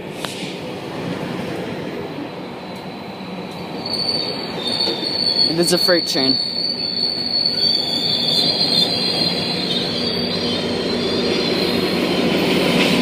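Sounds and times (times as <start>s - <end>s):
freight train rumbling on rails: 0.0s - 13.0s
high thin wheel squeal: 3.8s - 12.1s.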